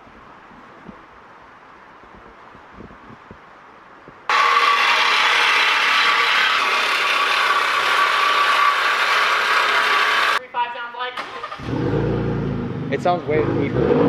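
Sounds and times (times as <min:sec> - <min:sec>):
power tool running: 0:04.3 - 0:10.4.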